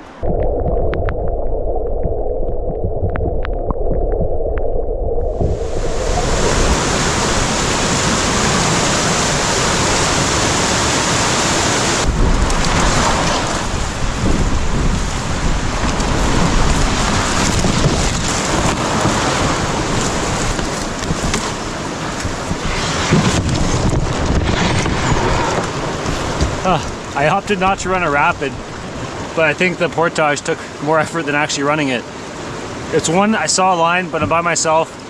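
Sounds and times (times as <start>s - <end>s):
wind buffeting microphone: 0.0s - 29.4s
river rapids rushing over rocks: 5.9s - 13.9s.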